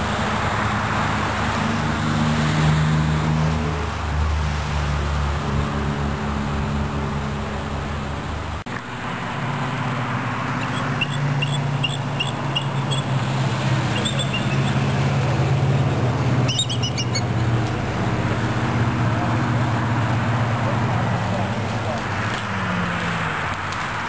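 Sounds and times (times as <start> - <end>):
rushing background noise: 0.0 - 24.0
bird chirping: 10.6 - 13.2, 13.9 - 14.9, 16.5 - 17.4.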